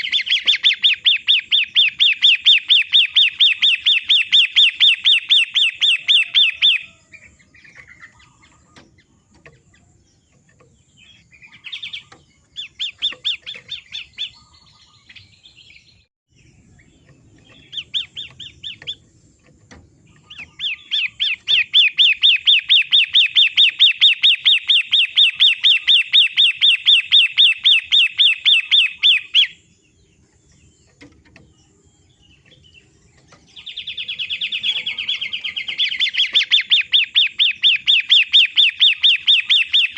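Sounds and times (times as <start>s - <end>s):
shrike chattering chirps: 20.1s - 29.6s, 32.8s - 39.9s.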